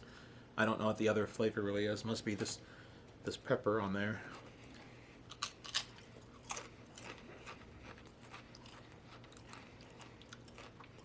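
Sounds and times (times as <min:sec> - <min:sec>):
person chewing crisps: 0:04.3 - 0:11.0.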